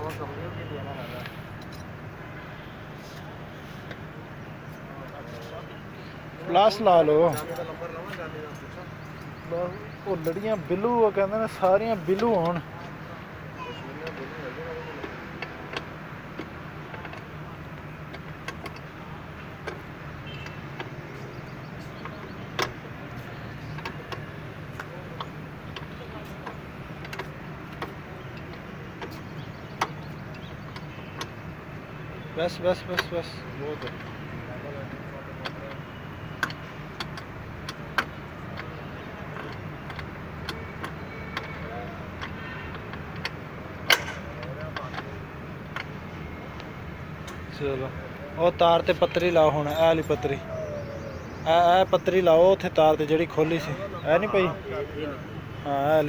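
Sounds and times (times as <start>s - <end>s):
hand tools clicking and tapping: 15.0s - 47.5s
tools clicking and tapping: 32.5s - 34.3s, 34.9s - 47.5s.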